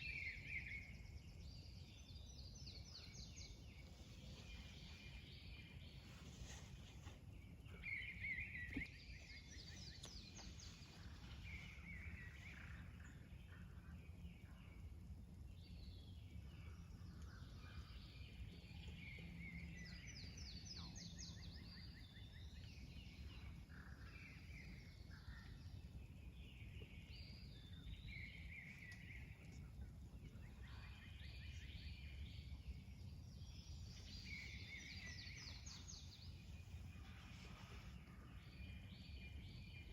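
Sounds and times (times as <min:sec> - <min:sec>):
birds singing: 0:00.0 - 0:39.9
steady low rumble: 0:00.8 - 0:21.6, 0:22.2 - 0:39.9.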